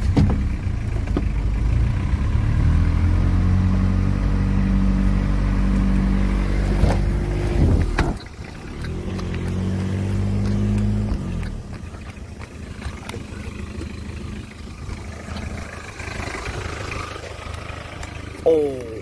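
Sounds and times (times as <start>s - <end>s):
vehicle engine running: 0.0s - 19.0s
sharp clicks: 10.3s - 13.9s, 17.3s - 19.0s.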